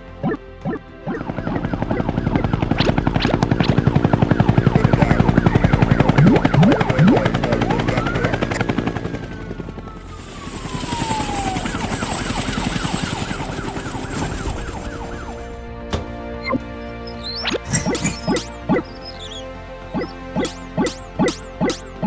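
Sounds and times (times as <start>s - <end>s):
fast chopping rhythm: 0.2s - 7.6s, 17.4s - 19.2s, 20.0s - 22.0s
warbling tone: 0.2s - 8.6s, 17.2s - 19.3s.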